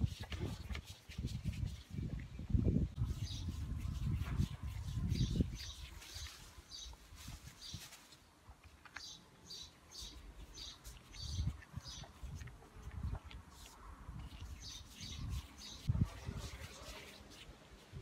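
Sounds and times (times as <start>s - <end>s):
small bird chirping: 3.0s - 8.1s, 8.8s - 12.5s, 13.6s - 16.9s.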